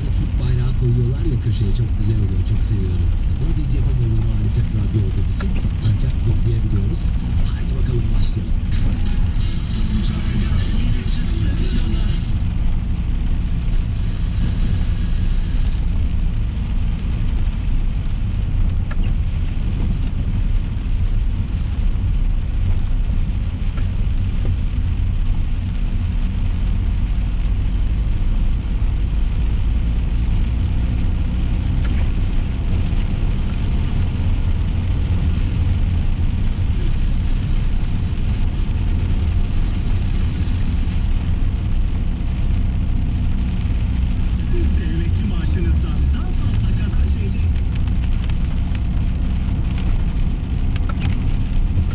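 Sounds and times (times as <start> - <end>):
rain on car body: 0.0 - 51.9
road and engine rumble in car: 0.0 - 51.9.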